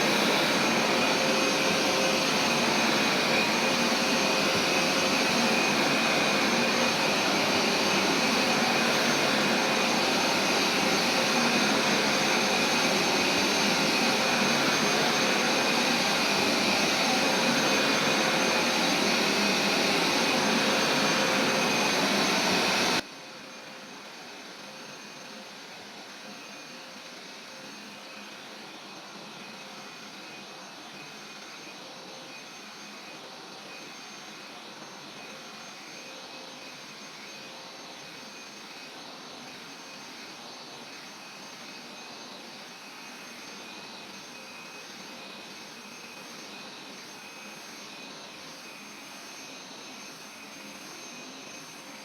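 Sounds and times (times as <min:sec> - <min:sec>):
steam cleaner motor whining: 0:00.0 - 0:23.0.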